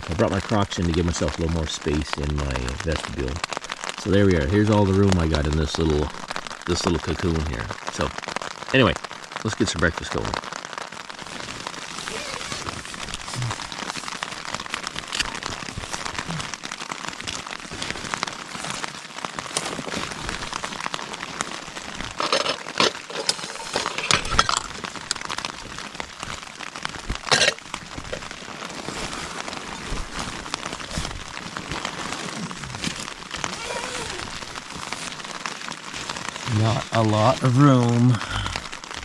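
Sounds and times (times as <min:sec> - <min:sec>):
rain on tent fabric: 0:00.0 - 0:39.0
camping gear rustling and clinking: 0:11.1 - 0:37.9.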